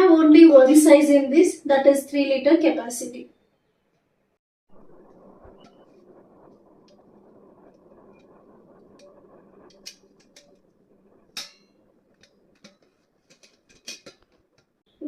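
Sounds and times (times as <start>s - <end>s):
faint steady hum: 4.7s - 15.0s.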